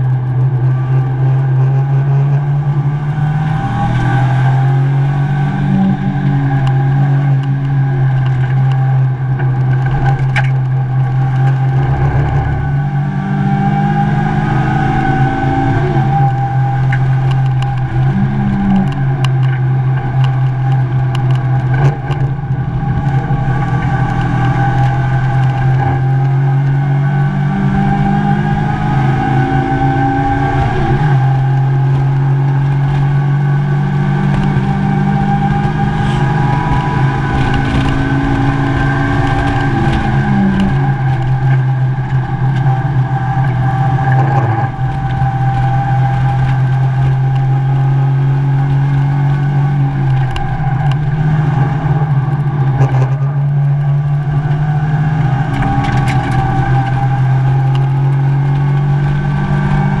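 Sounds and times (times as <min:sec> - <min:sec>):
car engine at high revs: 0:00.0 - 1:00.0
road and wind noise: 0:00.0 - 1:00.0.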